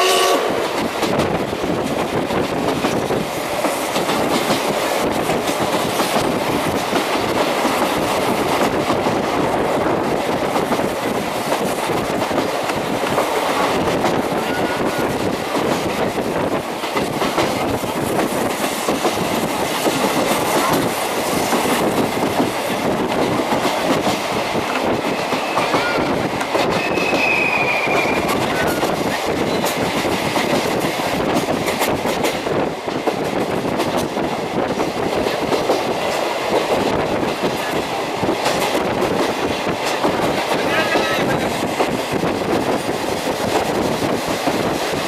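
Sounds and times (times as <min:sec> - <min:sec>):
train running gear rumble: 0:00.0 - 0:45.0
high wheel squeal: 0:14.4 - 0:15.1, 0:26.8 - 0:28.9.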